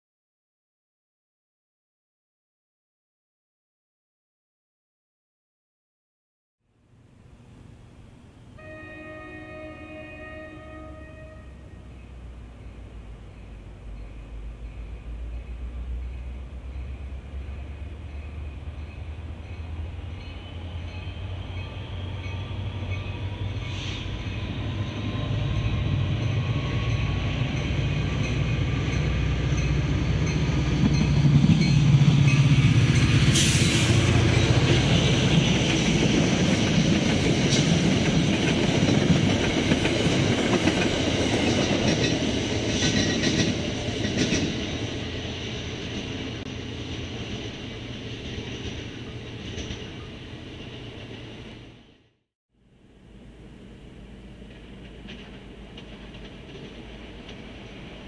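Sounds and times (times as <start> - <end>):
train rumbling past: 6.9 - 58.0
train wheels clicking: 22.1 - 51.4, 54.4 - 58.0.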